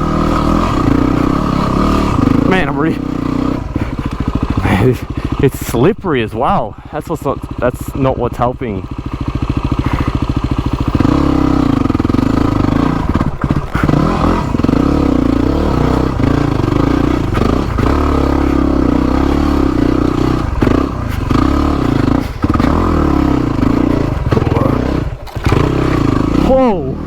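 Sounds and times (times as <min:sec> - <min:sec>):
dirt bike engine revving: 0:00.0 - 0:27.0
bike clattering on rough ground: 0:13.1 - 0:26.4.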